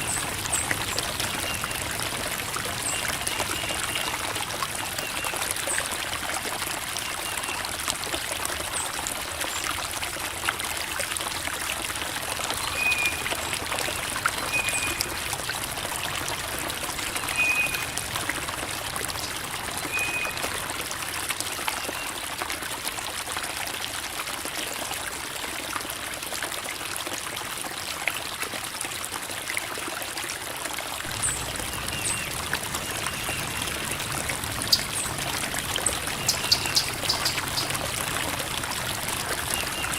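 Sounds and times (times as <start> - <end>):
creek water babbling over rocks: 0.0 - 39.9.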